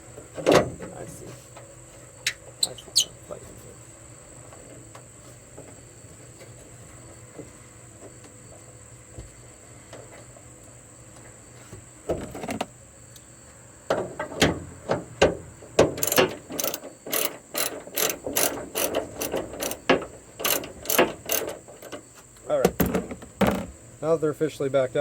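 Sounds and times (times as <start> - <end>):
ratchet wrench clicking: 16.0 - 22.0.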